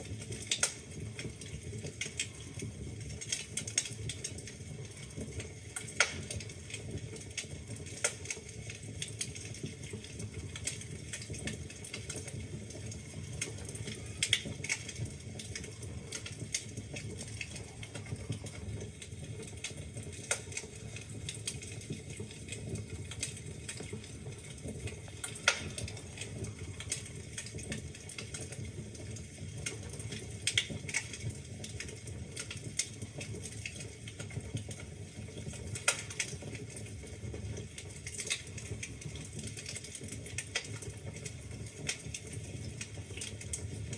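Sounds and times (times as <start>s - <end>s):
low burning rumble: 0.0s - 43.9s
wood fire crackling: 0.0s - 43.9s.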